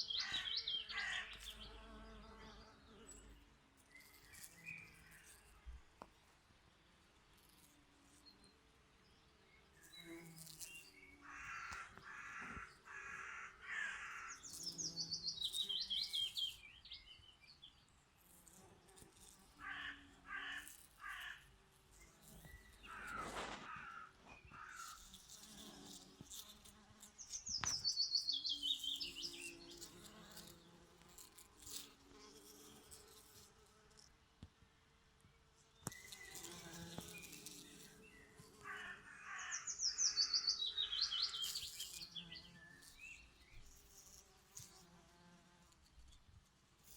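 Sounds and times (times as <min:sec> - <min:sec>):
birds calling repeated notes: 0:00.0 - 0:01.7, 0:38.1 - 0:41.5
songbird trill: 0:00.0 - 0:05.6, 0:08.2 - 0:18.0, 0:27.2 - 0:30.8, 0:35.6 - 0:44.0.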